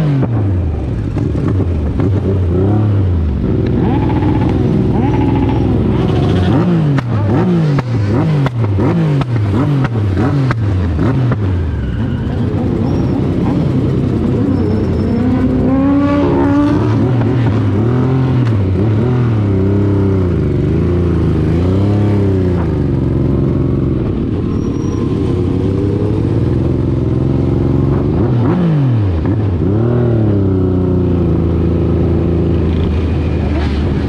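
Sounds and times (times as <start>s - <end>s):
motorcycle engines revving: 0.0s - 34.0s
motorcycle passing by: 2.4s - 11.8s, 12.4s - 22.9s.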